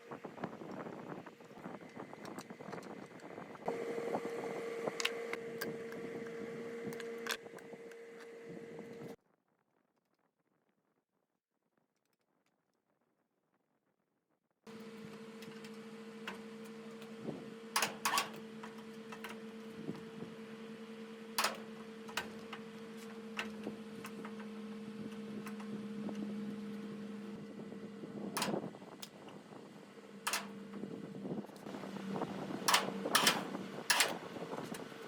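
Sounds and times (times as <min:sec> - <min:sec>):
machine hum: 0:00.0 - 0:09.2, 0:14.7 - 0:35.0
sharp clicks and knocks: 0:30.2 - 0:30.8, 0:32.7 - 0:34.8.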